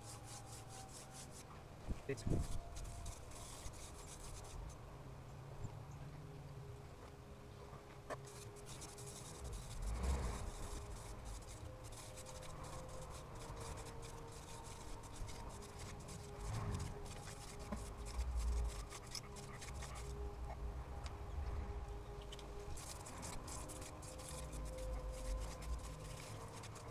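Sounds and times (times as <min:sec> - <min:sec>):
wood rubbing on wood: 0:00.0 - 0:01.5, 0:02.2 - 0:04.7, 0:08.1 - 0:20.2, 0:22.3 - 0:26.9.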